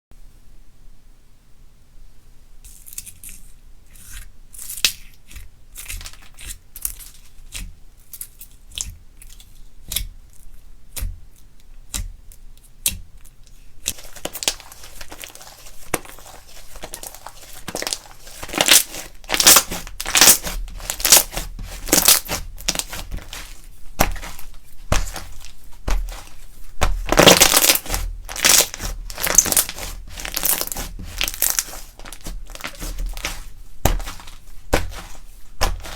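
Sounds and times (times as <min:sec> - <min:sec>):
slime crackling and crunching: 0:12.8 - 0:35.9.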